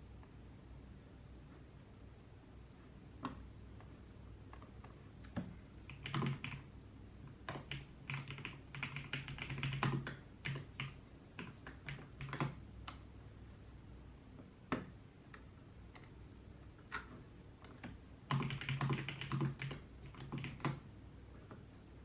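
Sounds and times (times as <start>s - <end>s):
typing on computer keyboard: 4.5s - 6.7s, 7.4s - 13.0s, 16.9s - 20.9s.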